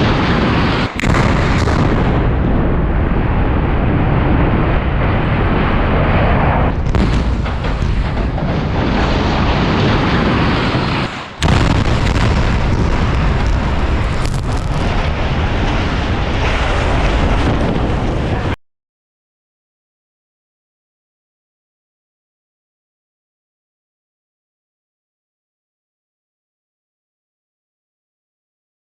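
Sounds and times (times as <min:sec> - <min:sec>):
rumbling roar of demolition blasts: 0:00.0 - 0:18.6.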